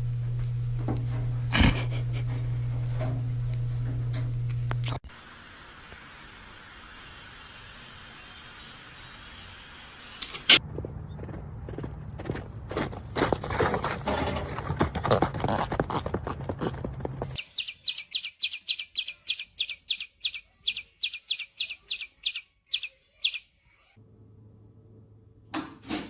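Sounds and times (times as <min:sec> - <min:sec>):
loud clattering and knocking: 0:13.3 - 0:15.4
bird chirping: 0:17.4 - 0:24.0.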